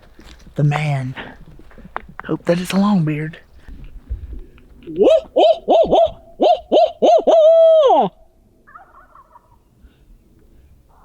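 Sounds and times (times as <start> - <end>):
owl call hoots: 4.9 - 9.6.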